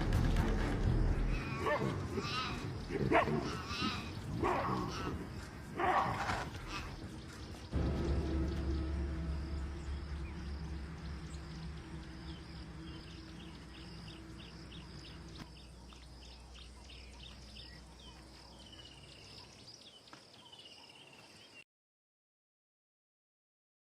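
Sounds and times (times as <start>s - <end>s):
background music: 0.0s - 15.4s.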